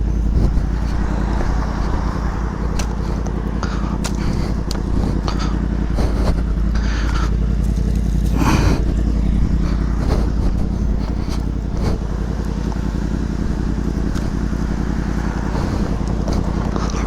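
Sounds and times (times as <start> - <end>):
motorcycle engine rumbling: 0.0 - 17.0
rush of noise: 0.0 - 17.0.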